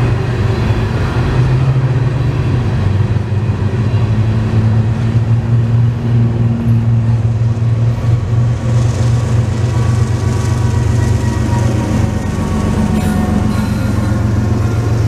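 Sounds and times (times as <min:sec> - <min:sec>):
diesel locomotive engine drone: 0:00.0 - 0:15.0
wheels rumbling on rail: 0:00.0 - 0:15.0.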